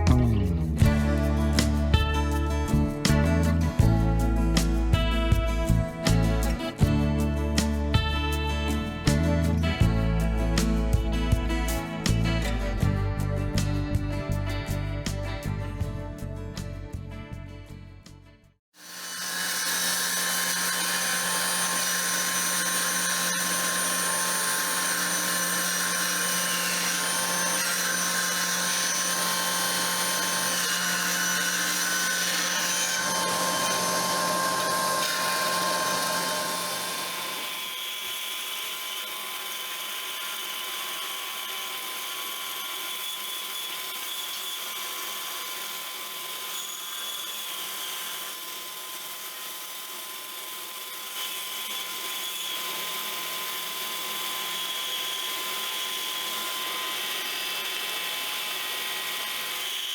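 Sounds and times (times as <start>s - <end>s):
power tool motor running: 18.8s - 59.9s.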